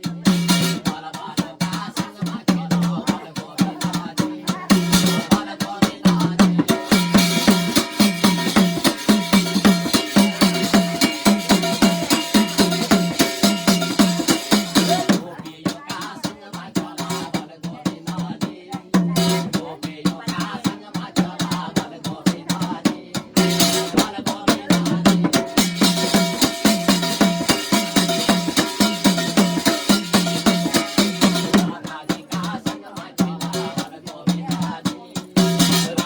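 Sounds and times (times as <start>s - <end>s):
fast folk drumming: 0.0s - 36.0s
ringing percussion: 1.6s - 16.4s, 19.1s - 20.6s, 23.4s - 36.0s.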